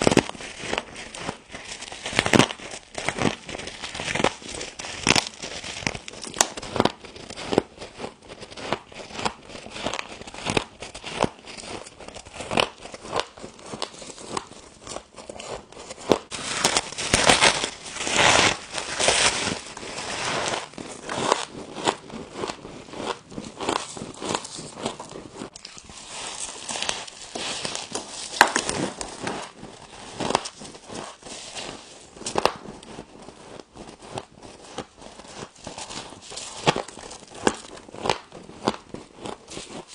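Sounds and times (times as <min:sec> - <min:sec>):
frost being bitten and chewed: 0:20.6 - 0:29.3, 0:35.7 - 0:39.9.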